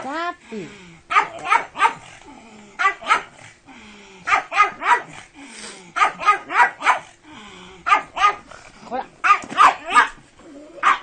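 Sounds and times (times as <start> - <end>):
dog barking sharply: 1.1 - 2.0, 2.8 - 3.3, 6.0 - 7.1, 9.2 - 10.2.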